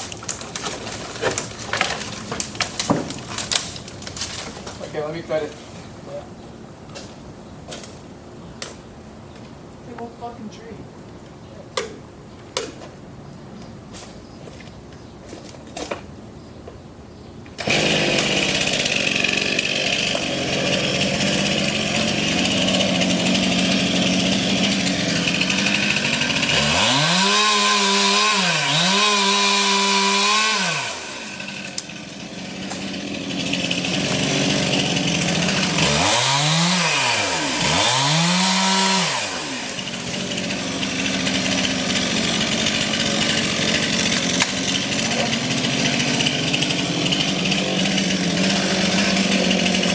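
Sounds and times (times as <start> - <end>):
chainsaw cutting tree: 17.6 - 49.9.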